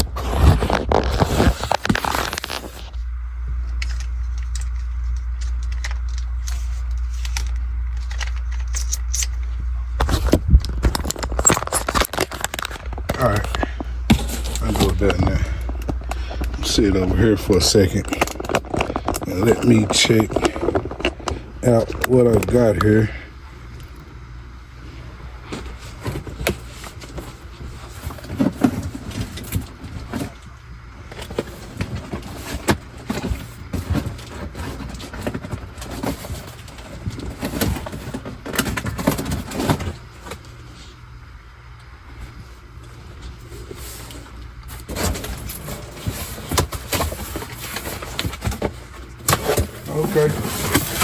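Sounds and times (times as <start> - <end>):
steady low hum: 0.0 - 51.0
straps clattering and rustling: 42.2 - 51.0.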